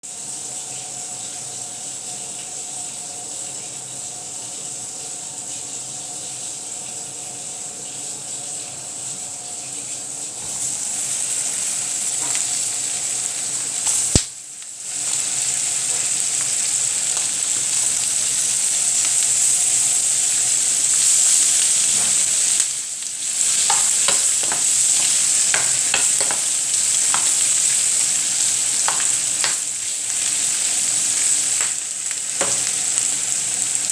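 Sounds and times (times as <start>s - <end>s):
food sizzling in oil: 8.8s - 33.9s.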